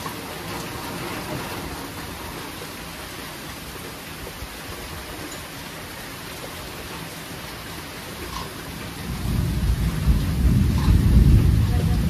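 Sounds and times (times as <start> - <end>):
steady rain falling: 0.0 - 12.0
thunder rumbling: 8.3 - 12.0.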